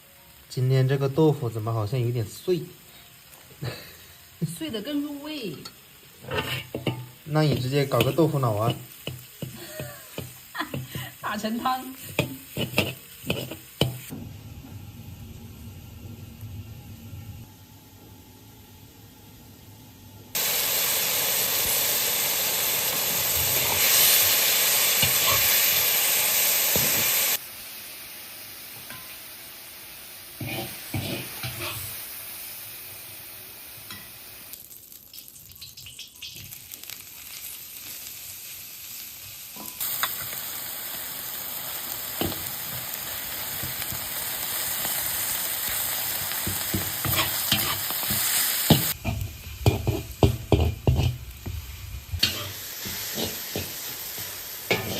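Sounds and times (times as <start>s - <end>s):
food sizzling in a pan: 0.0s - 19.4s, 20.3s - 54.9s
utensil scraping a pan: 6.2s - 11.0s, 12.0s - 14.1s, 30.4s - 31.9s, 46.4s - 51.3s, 52.1s - 54.9s.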